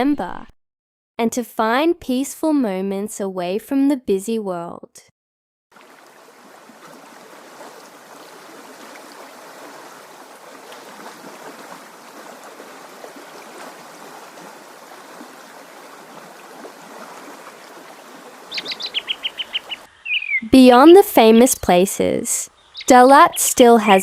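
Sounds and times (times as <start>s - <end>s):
stream water running: 5.7s - 21.5s, 22.5s - 24.0s
faint water trickling: 5.7s - 21.8s.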